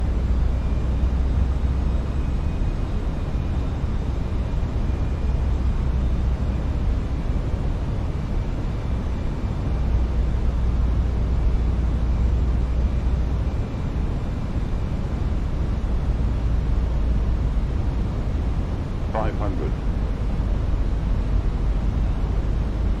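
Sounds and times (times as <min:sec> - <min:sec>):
low rumble of airflow and engines: 0:00.0 - 0:23.0.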